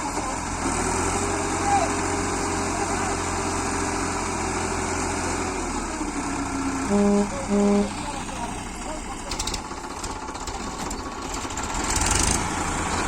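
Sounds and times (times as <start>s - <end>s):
tractor engine idling: 0.0s - 13.0s
short loud beeps: 6.9s - 8.0s.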